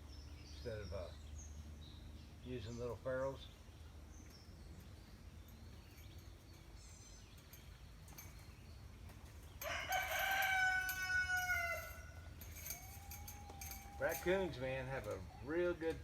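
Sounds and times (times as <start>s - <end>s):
rooster crowing: 9.6s - 14.2s.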